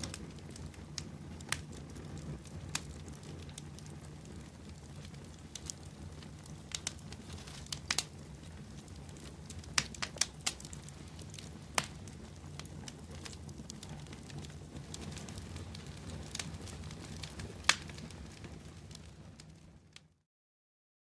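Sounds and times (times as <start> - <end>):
low rumble of flames: 0.0 - 20.2
wood fire pops and crackles: 0.0 - 20.2.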